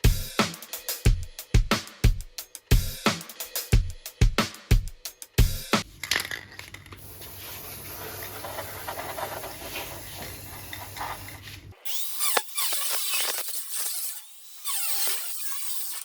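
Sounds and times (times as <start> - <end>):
tool scraping: 5.8 - 16.0.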